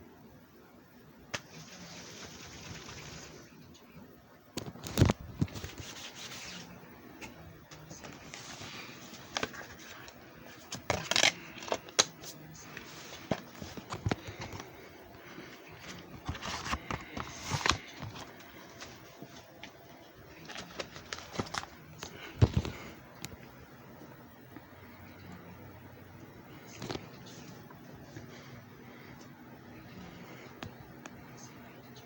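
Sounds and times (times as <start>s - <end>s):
objects being handled: 4.6s - 23.4s.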